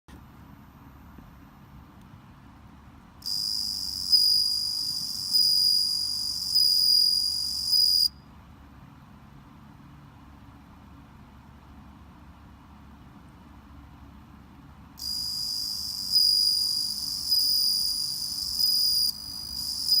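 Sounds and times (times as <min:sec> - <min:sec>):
cricket trilling: 0:03.2 - 0:08.2, 0:15.0 - 0:20.0.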